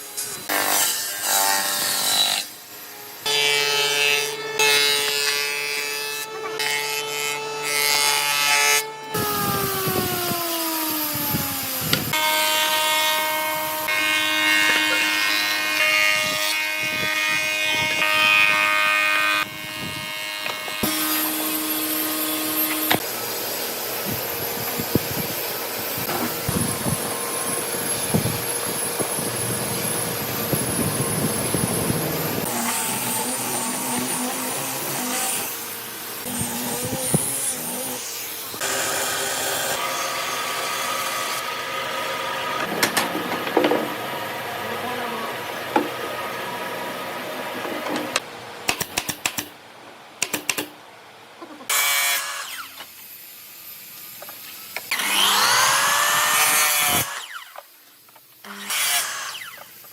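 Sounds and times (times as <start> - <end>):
power tool motor humming: 9.1 - 12.8, 19.4 - 40.2.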